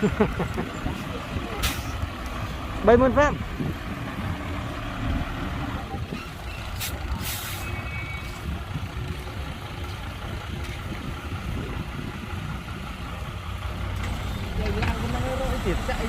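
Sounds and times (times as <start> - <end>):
diesel engine rumbling: 0.0 - 16.0
short air hisses: 6.8 - 7.8.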